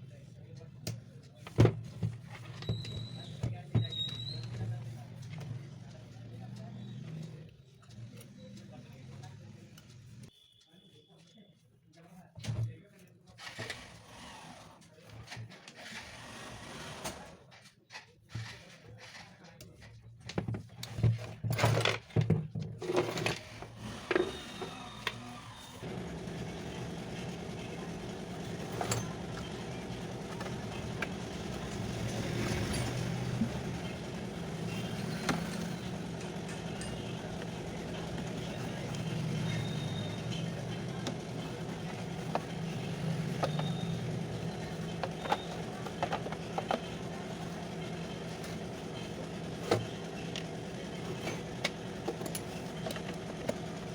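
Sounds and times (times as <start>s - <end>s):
parts clicking and knocking: 19.6s - 53.9s
mixer grinder motor running: 22.8s - 53.9s.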